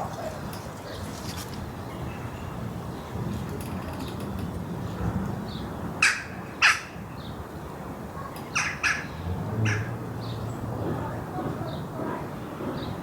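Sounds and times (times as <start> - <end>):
large bird calling: 8.5 - 10.0.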